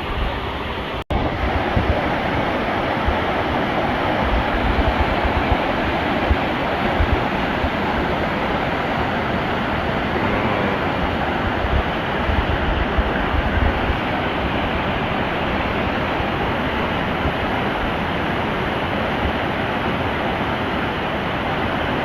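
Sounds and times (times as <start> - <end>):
wind buffeting on microphone: 0.0 - 10.2, 10.8 - 20.9
mountain stream rushing through rapids: 0.0 - 22.0.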